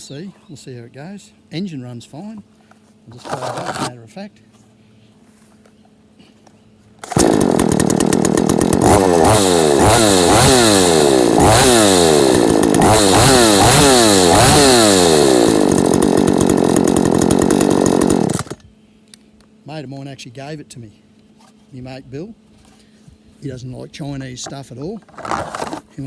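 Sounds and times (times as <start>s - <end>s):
chainsaw starting and revving: 7.0s - 18.6s.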